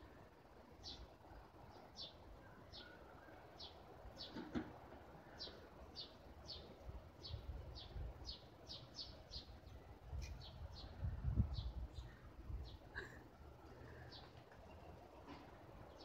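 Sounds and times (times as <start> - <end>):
small bird chirping: 5.3 - 12.8.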